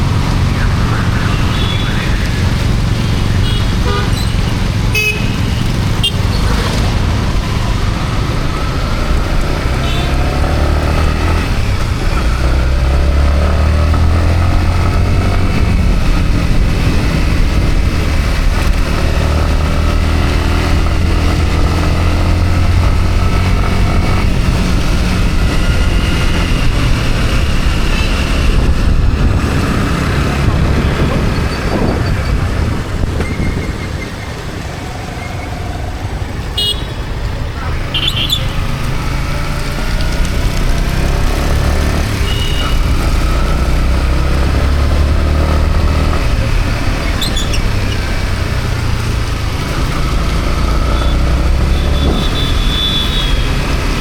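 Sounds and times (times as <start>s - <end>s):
motorcycle engine running: 0.0s - 54.0s
short horn toots: 51.0s - 53.6s.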